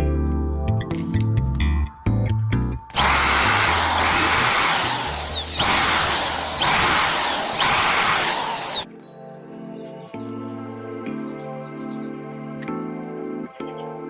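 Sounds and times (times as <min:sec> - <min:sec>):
electric power tool whining: 0:02.9 - 0:08.9.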